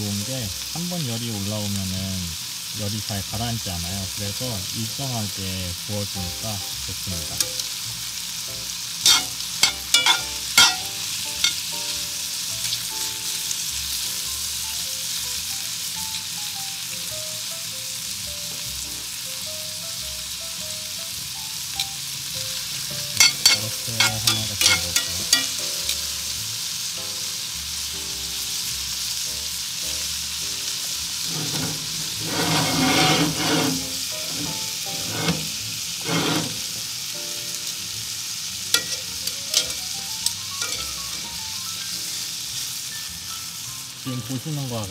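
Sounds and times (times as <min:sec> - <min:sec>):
steak sizzling in a skillet: 0:00.0 - 0:44.9
metal tongs scraping a pan: 0:07.1 - 0:07.8, 0:09.0 - 0:11.8, 0:23.1 - 0:26.1, 0:31.1 - 0:36.9, 0:38.7 - 0:42.3.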